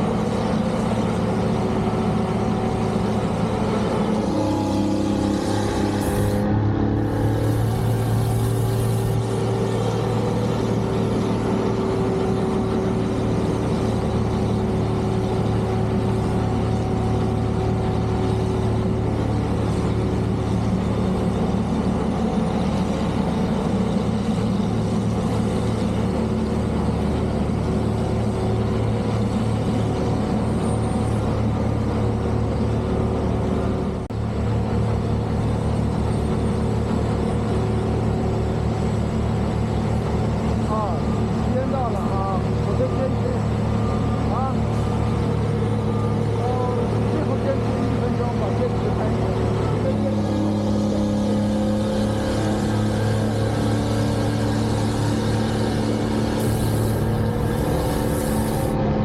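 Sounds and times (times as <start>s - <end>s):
heavy vehicle engine rumbling: 0.0s - 59.0s.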